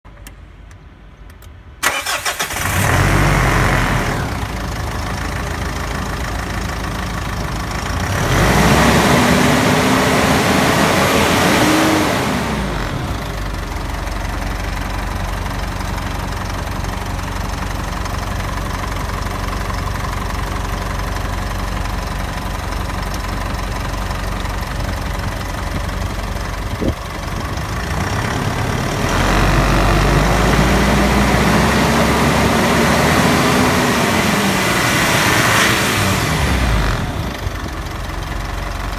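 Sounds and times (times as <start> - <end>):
diesel engine cranking and idling: 0.1 - 38.9
engine revving: 1.8 - 4.7, 7.8 - 13.5, 27.5 - 37.7.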